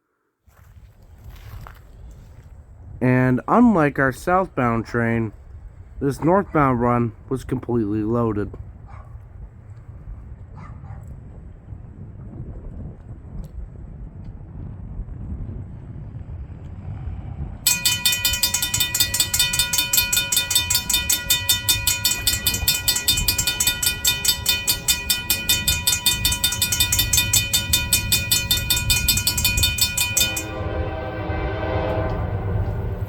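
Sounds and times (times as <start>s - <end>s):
passing train rumble: 16.0s - 33.0s
railroad crossing bell ringing: 17.7s - 33.0s
locomotive horn: 28.8s - 33.0s.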